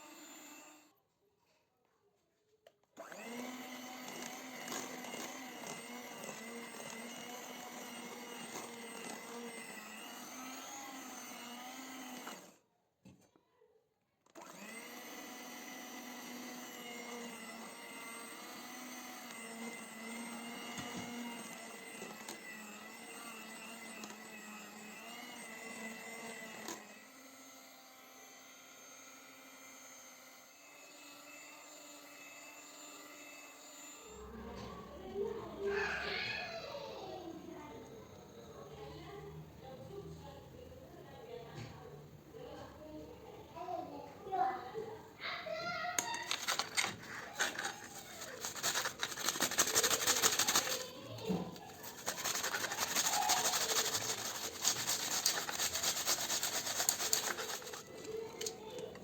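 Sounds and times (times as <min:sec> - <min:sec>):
appliance motor humming: 0:00.0 - 0:00.9, 0:03.0 - 0:12.6, 0:14.3 - 0:59.0.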